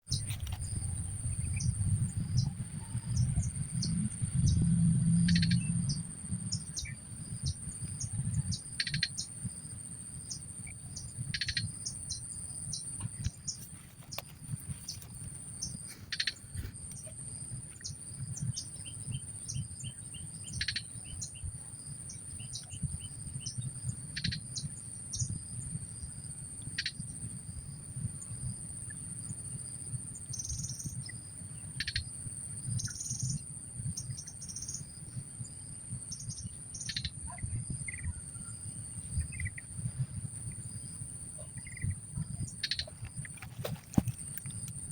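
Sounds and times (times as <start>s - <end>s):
low rumble: 0.6s - 7.4s.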